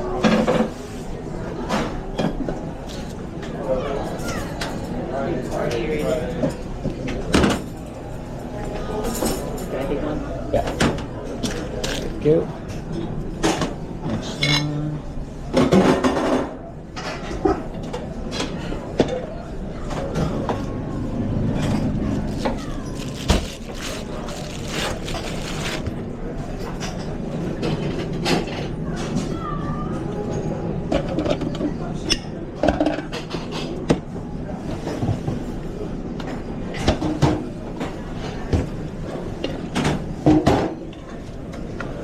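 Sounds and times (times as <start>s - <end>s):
kitchen background hum: 0.0s - 19.1s, 19.8s - 30.1s
kitchen low rumble: 19.8s - 26.5s.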